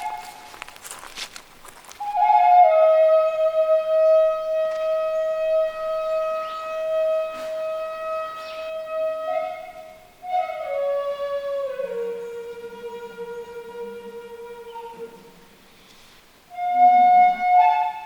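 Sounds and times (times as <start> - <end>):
solo flute: 0.0 - 1.2, 1.9 - 15.5, 16.5 - 18.0.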